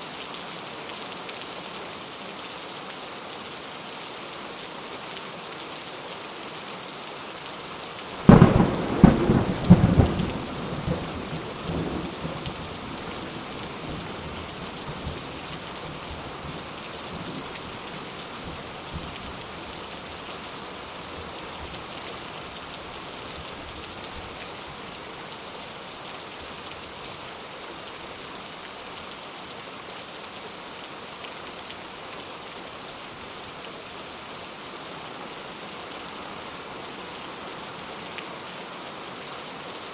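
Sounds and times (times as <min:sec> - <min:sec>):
steady rain: 0:00.0 - 0:39.9
close thunderclap: 0:08.2 - 0:15.3.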